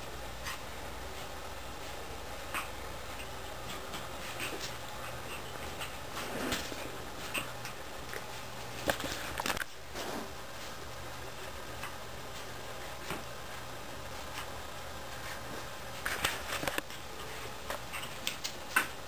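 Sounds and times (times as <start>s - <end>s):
steady low hum: 0.0s - 19.0s
puppies scampering clicks and taps: 2.5s - 9.7s, 16.0s - 19.0s.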